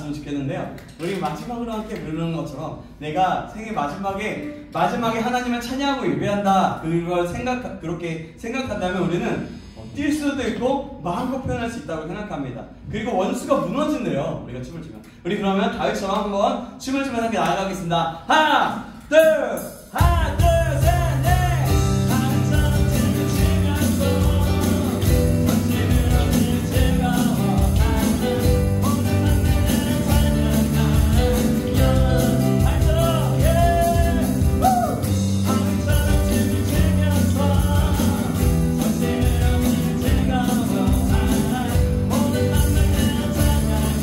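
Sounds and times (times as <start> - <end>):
electronic drums: 19.6 - 44.0
acoustic guitar: 20.0 - 44.0
bass guitar: 20.0 - 44.0.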